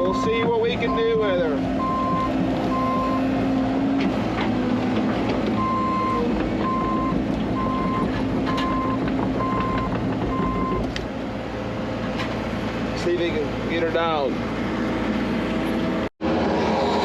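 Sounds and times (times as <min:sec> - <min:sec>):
reversing alarm beeping: 0:00.0 - 0:03.2, 0:05.6 - 0:10.8
diesel machine engine running: 0:00.0 - 0:17.0
knocks: 0:07.6 - 0:11.0.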